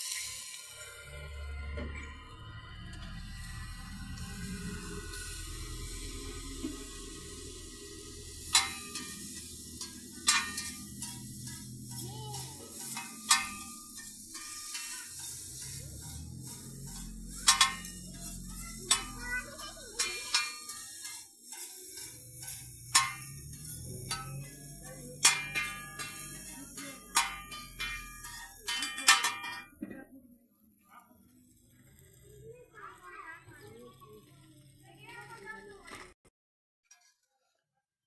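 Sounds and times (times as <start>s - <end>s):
low voices: 0.7s - 30.2s
metal spatula clanking on griddle: 4.3s - 30.0s.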